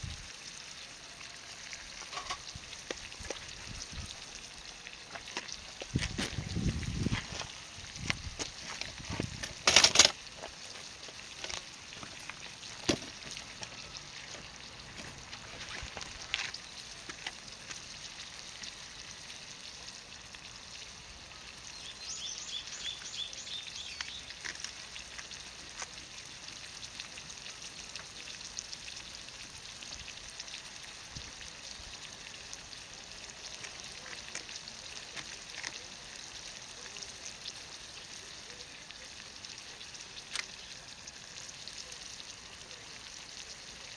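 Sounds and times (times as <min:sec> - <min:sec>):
oil sizzling in a pan: 0:00.0 - 0:43.9.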